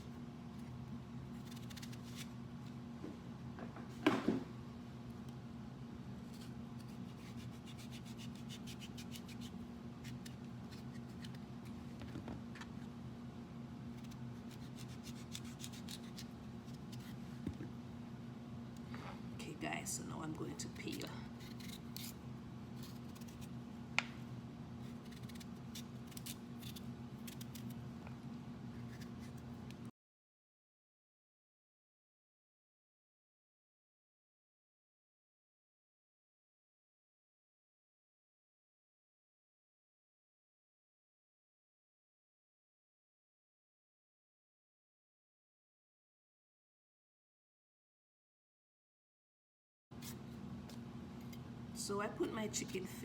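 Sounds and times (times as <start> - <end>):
low electrical hum: 0.0 - 29.9, 50.0 - 53.0
blade scraping pumpkin skin: 14.0 - 17.2, 20.8 - 23.5, 24.8 - 27.8.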